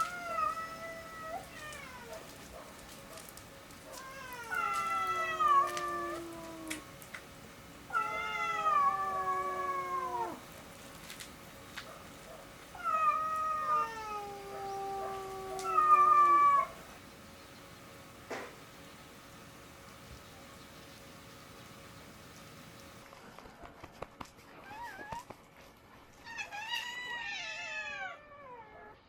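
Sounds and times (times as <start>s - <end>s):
cat meowing: 0.0s - 2.3s, 3.9s - 6.8s, 7.9s - 10.4s, 12.8s - 16.8s.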